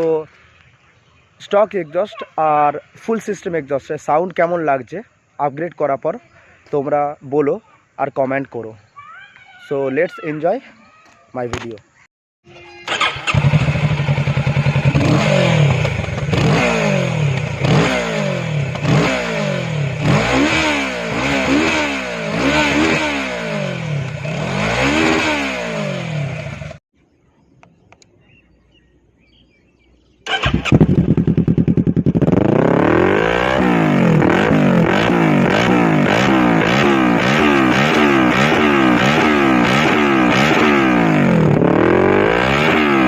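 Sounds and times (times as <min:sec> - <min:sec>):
motorcycle idling: 0:12.6 - 0:20.0, 0:30.3 - 0:32.6
motorcycle engine revving: 0:12.8 - 0:26.8, 0:30.2 - 0:43.0.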